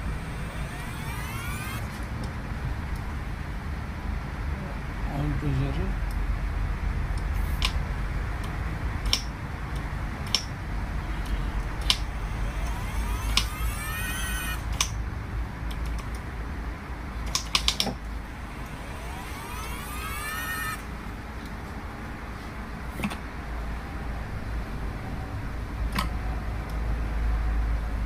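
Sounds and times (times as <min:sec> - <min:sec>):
pump motor rising whine: 0:00.0 - 0:02.2, 0:11.0 - 0:14.9, 0:18.0 - 0:21.2
sharp clicks: 0:00.0 - 0:03.1, 0:07.1 - 0:07.8, 0:08.4 - 0:10.6, 0:11.2 - 0:15.0, 0:17.2 - 0:21.6
steady low hum: 0:00.0 - 0:05.1, 0:06.0 - 0:22.7.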